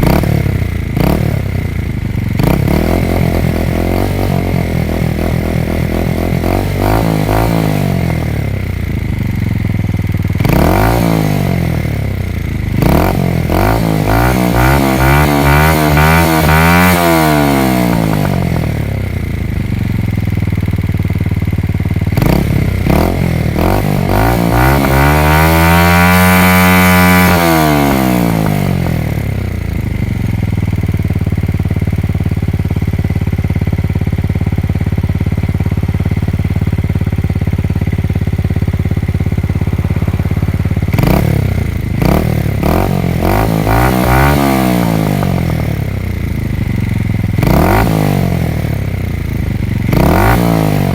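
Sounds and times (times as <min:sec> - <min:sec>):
motorcycle engine revving and idling: 0:00.0 - 0:50.9.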